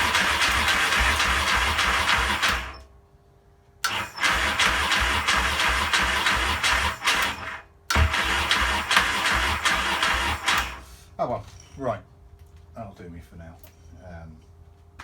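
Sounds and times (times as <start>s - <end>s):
motorcycle engine cranking: 0.0s - 2.9s, 3.8s - 10.8s.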